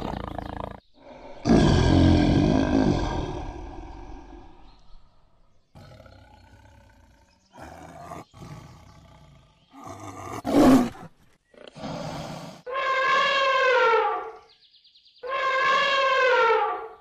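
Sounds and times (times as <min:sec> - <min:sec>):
tiger growling and roaring: 0:00.0 - 0:04.9, 0:05.7 - 0:13.2.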